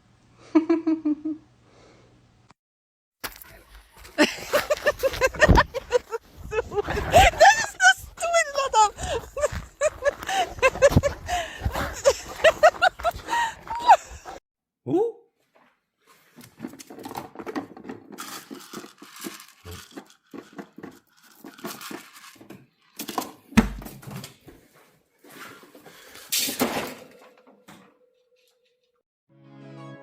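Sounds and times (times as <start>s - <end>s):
rustling and crinkling objects: 3.2s - 14.4s, 15.5s - 23.3s.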